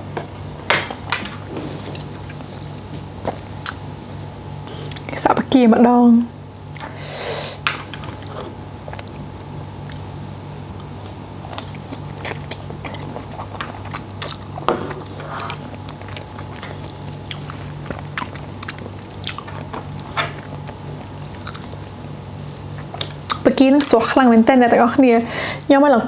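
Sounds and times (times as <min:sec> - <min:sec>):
steady low hum: 0:00.0 - 0:26.0
wet chewing and biting: 0:01.9 - 0:05.1, 0:08.1 - 0:10.2, 0:10.8 - 0:23.5.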